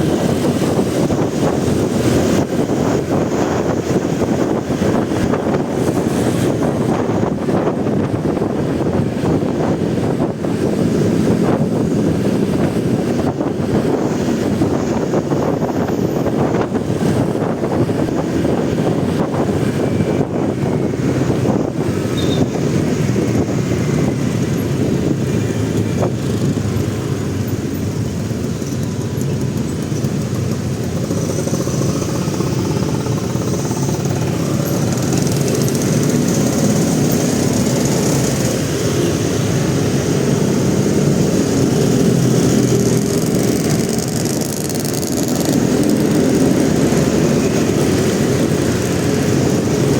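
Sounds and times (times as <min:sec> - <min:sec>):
motorcycle engine running: 0:00.0 - 0:49.9
surrounding traffic noise: 0:00.0 - 0:49.9.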